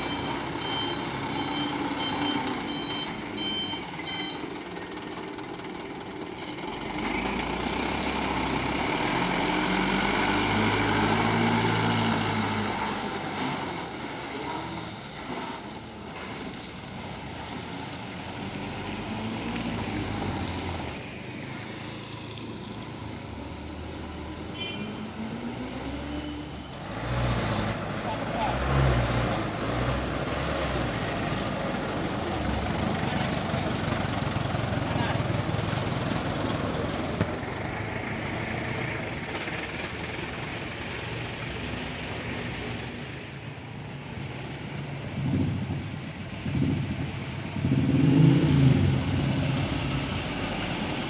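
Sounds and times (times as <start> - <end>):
reversing beeper: 0.0 - 4.6
heavy truck engines revving: 0.0 - 51.0.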